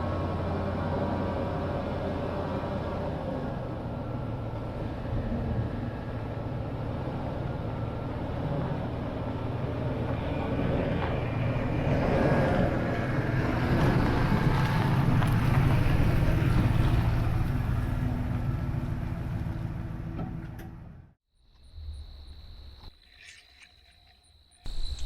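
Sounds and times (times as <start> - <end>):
van engine and road rumble: 0.0 - 21.2
high-pitched insect trill: 21.4 - 25.0.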